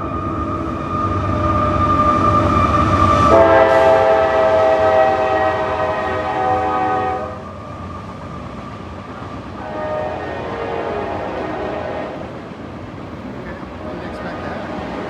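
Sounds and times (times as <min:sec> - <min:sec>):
train rolling rumble: 0:00.0 - 0:15.0
train horn blasts: 0:03.1 - 0:07.5, 0:09.6 - 0:12.4.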